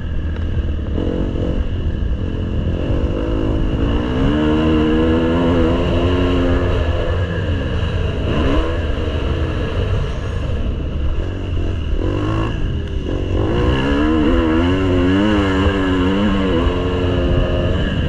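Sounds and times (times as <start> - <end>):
steady low rumble: 0.0 - 18.0
motocross bike engine revving: 0.8 - 18.0.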